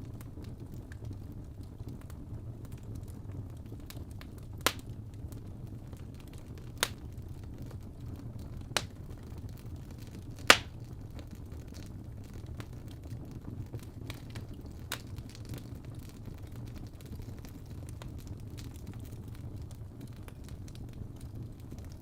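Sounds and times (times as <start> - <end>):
low rumble of flame: 0.0 - 22.0
small fire crackles: 0.0 - 22.0
loud sharp pops: 10.5 - 10.8.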